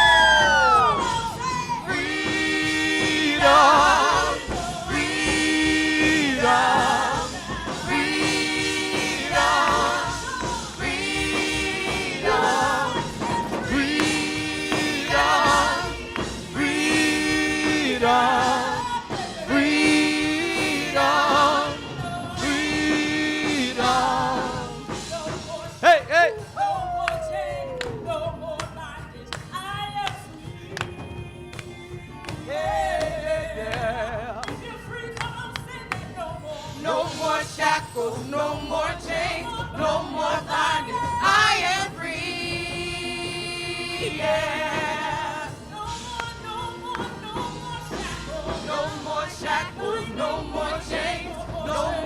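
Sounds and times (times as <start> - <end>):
gospel singing: 0.0 - 52.0.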